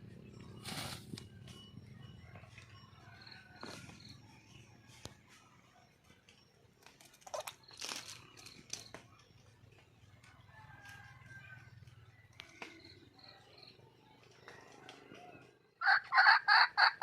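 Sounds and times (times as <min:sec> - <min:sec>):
junglefowl hen calling: 0:15.8 - 0:17.0.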